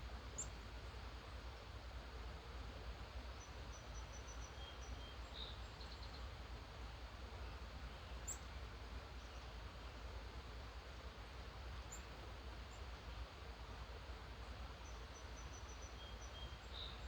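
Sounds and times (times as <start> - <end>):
faint wild birds chirping: 0.2 - 1.8, 2.5 - 6.6, 7.2 - 10.0, 11.8 - 13.4, 14.2 - 17.0.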